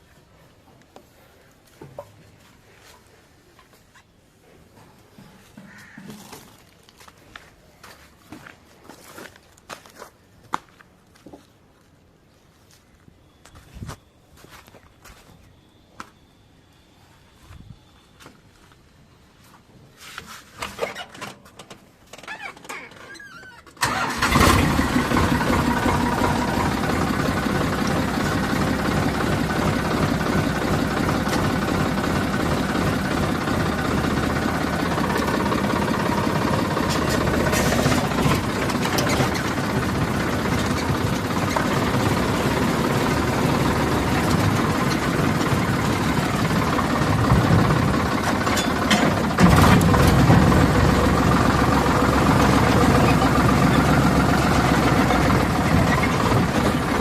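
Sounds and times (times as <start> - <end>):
diesel engine running: 23.8 - 57.0.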